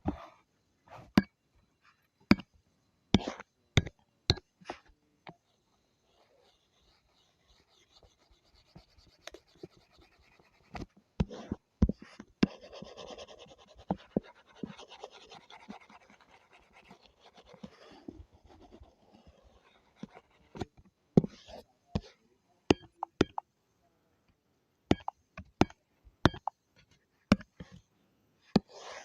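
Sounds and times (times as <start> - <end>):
drawing tool scratching: 3.2 - 3.4, 4.6 - 23.4, 28.5 - 29.0
sharp taps and knocks: 22.7 - 23.5, 24.9 - 26.6, 27.3 - 27.8.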